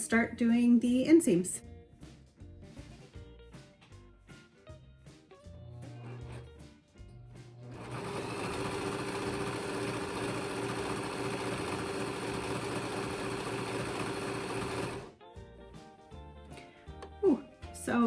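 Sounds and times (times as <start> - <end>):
serger sewing machine running: 7.6 - 15.1.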